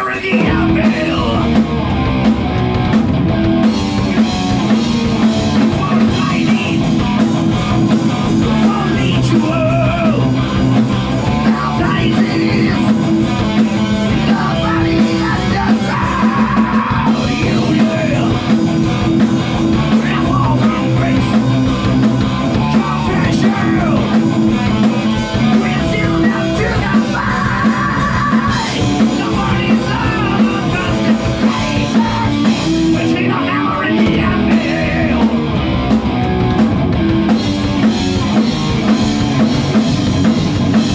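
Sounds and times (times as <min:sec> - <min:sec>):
loud rock band with singing: 0:00.0 - 0:40.9.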